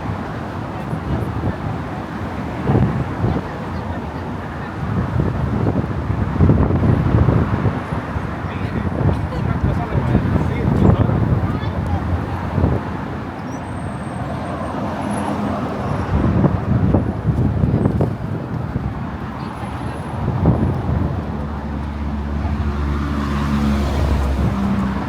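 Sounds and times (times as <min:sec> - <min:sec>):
traffic rumble: 0:00.0 - 0:25.0.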